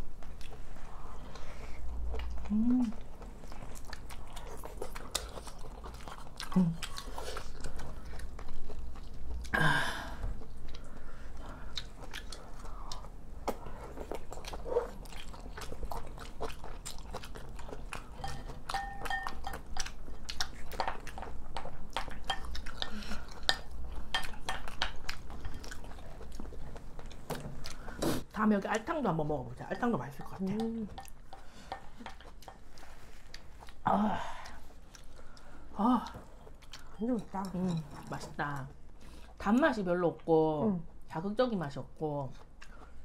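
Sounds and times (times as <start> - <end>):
people chewing: 0.0 - 39.4, 42.3 - 43.0
spoon tapping ceramic bowls: 18.2 - 19.6.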